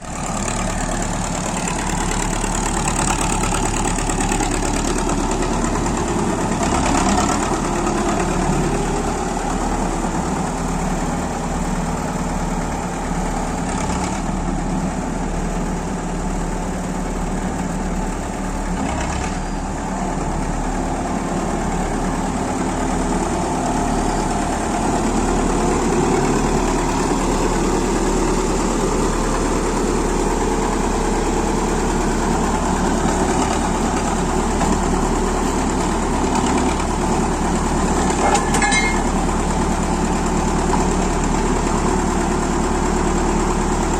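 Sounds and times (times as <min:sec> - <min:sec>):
tractor engine idling: 0:00.0 - 0:43.9.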